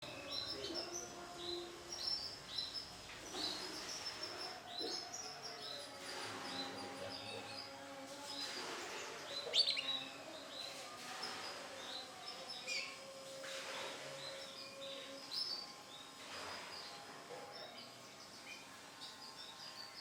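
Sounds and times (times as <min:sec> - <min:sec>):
canary chirping: 0:00.0 - 0:07.8, 0:09.2 - 0:13.2.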